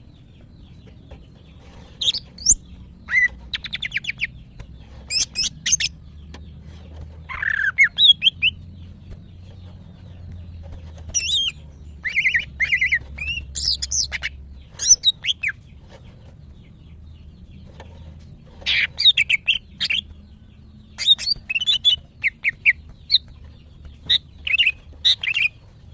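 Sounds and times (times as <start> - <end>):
bird chattering calls: 21.0 - 23.4.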